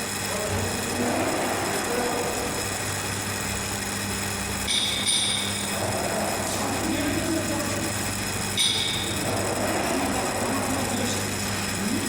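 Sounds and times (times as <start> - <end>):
machine motor hum: 0.0 - 12.0.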